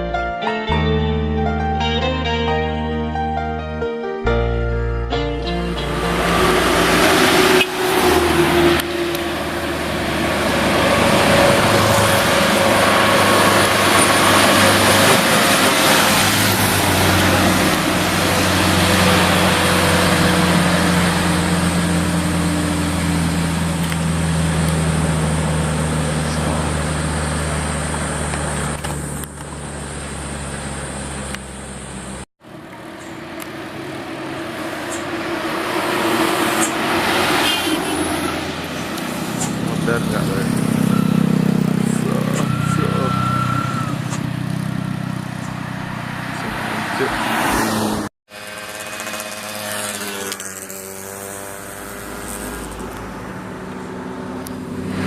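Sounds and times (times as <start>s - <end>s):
road noise of passing trucks: 4.3s - 55.0s
heavy truck engine working hard: 5.1s - 37.0s, 37.7s - 46.6s.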